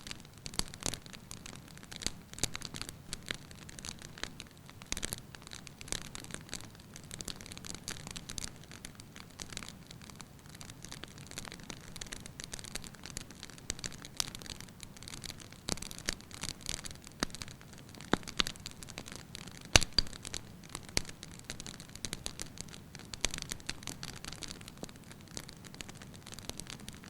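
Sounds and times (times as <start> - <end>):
soft steady hiss: 0.0 - 27.0
wood fire crackling: 0.0 - 27.0
sharp pops of fire: 17.2 - 27.0.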